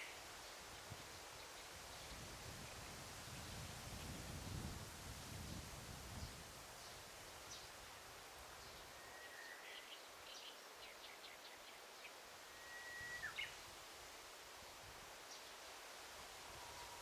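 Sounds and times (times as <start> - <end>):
soft forest hiss: 0.0 - 17.0
bird singing: 8.6 - 13.6.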